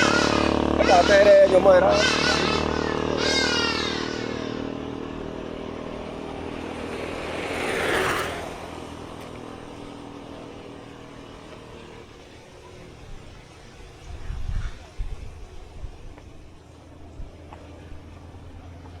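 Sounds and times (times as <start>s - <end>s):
road noise rush: 0.0s - 19.0s
vehicle passing: 0.0s - 19.0s.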